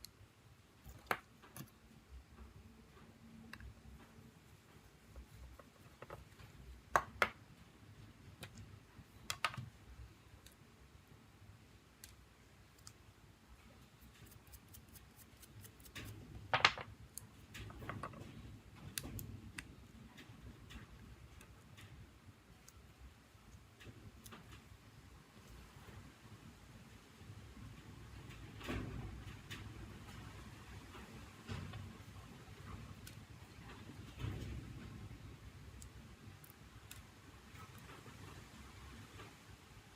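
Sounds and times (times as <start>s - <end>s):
small clicks and taps: 0.8s - 7.4s, 8.3s - 9.8s.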